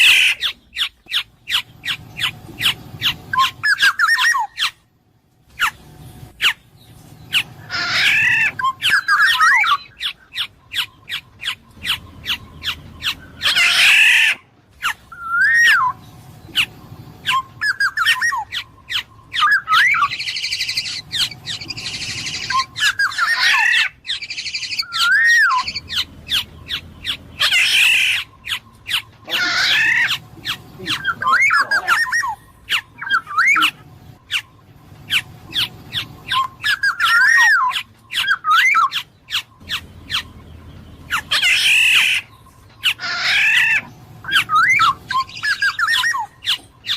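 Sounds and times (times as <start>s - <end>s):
harsh raspy bird calls: 0.0s - 46.9s
bird singing fluty whistled phrases: 7.4s - 14.4s, 15.1s - 33.8s, 35.1s - 40.4s, 41.1s - 46.9s.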